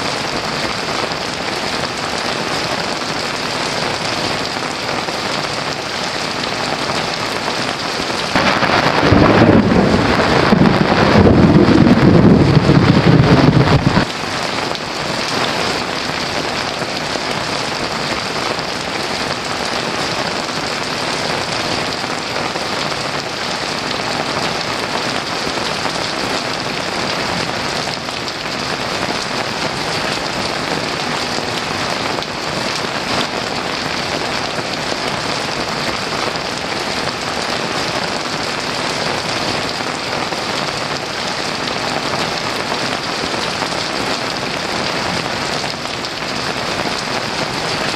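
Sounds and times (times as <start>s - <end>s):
heavy rain on a roof: 0.0s - 47.9s
low rumble of thunder: 8.4s - 14.1s.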